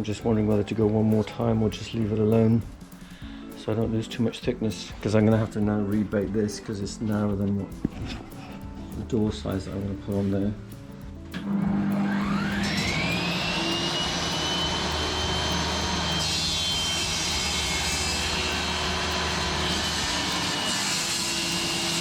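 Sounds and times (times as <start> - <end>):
table saw motor whine: 11.4 - 22.0.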